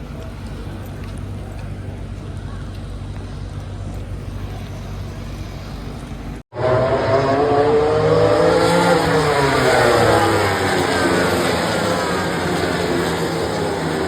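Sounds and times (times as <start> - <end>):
low engine rumble: 0.0 - 14.0
racing motorcycles at high revs: 6.5 - 14.0.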